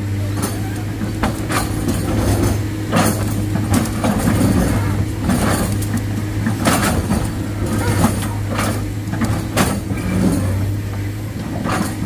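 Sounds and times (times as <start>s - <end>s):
heavy diesel engine running: 0.0s - 12.0s
noisy rushes and scrapes: 1.2s - 12.0s.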